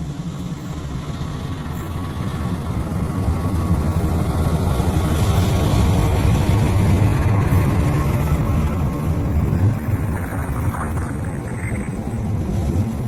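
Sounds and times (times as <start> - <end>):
diesel locomotive engine rumbling: 0.0 - 13.0.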